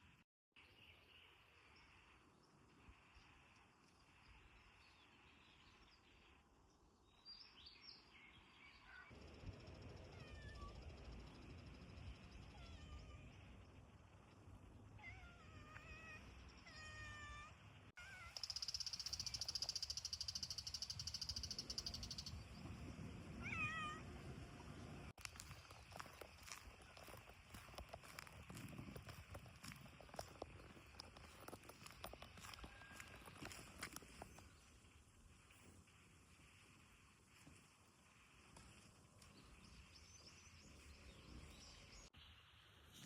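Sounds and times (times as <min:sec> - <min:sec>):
cat meowing: 0:23.4 - 0:24.0.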